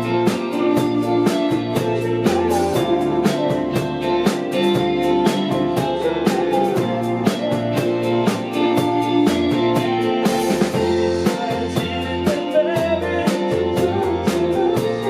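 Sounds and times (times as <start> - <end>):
drum kit beat: 0.0 - 15.0
guitar: 0.0 - 15.0
low bass notes: 0.0 - 15.0.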